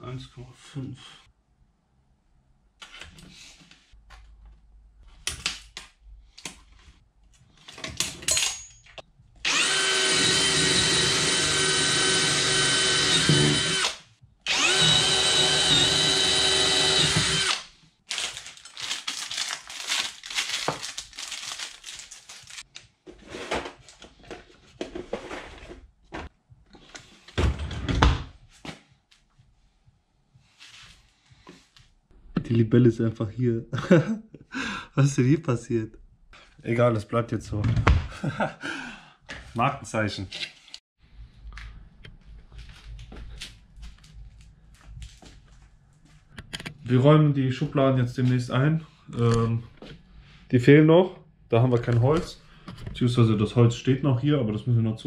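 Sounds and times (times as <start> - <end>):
cordless drill running: 9.4 - 17.7.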